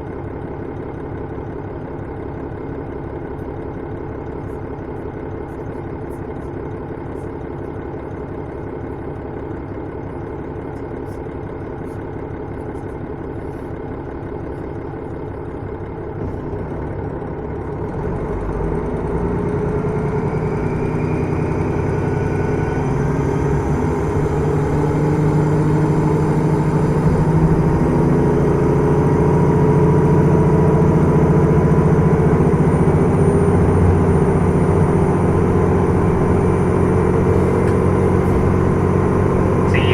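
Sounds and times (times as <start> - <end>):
diesel railcar engine: 0.0 - 39.9.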